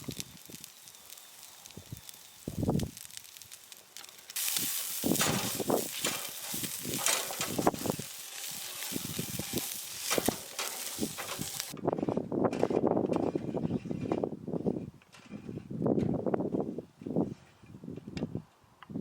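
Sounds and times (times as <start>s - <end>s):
food sizzling in a hot pan: 0.0s - 11.8s.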